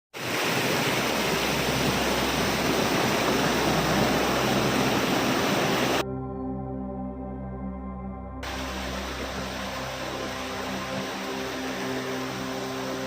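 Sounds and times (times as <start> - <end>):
flowing water rushing: 0.1 - 6.0, 8.4 - 13.0
slow ambient music: 0.7 - 13.0.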